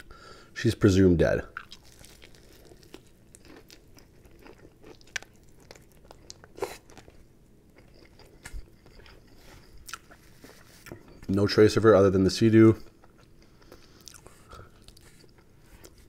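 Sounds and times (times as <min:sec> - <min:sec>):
crunching of breaded coating: 0:01.6 - 0:10.5
chewing fried chicken: 0:01.6 - 0:11.2, 0:12.8 - 0:16.0.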